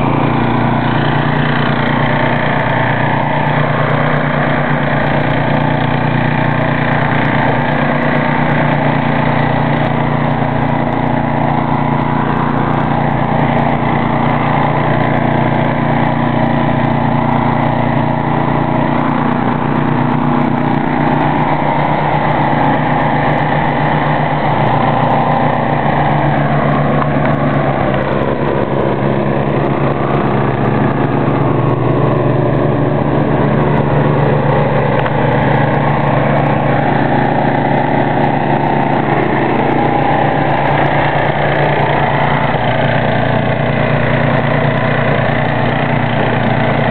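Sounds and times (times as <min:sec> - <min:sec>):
snow thrower engine running: 0:00.0 - 0:46.9.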